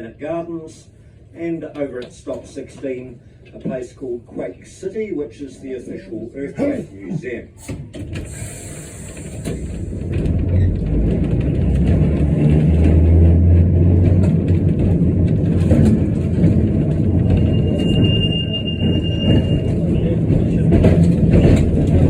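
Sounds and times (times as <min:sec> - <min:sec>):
electric tram rumbling on rails: 0:07.4 - 0:22.0.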